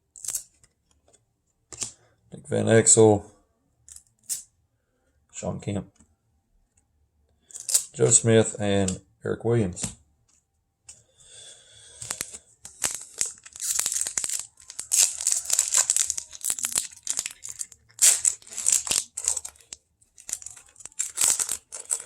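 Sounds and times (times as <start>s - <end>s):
foil wrapper tearing and crinkling: 12.1s - 22.0s.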